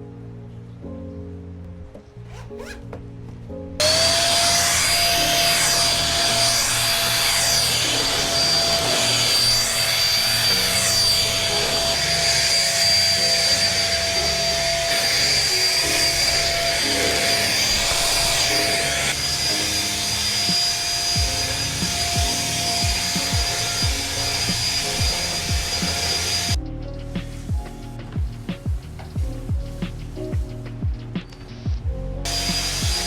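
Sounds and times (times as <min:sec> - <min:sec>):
soft background music: 0:00.0 - 0:33.0
vacuum cleaner running: 0:03.8 - 0:26.6, 0:32.3 - 0:33.0.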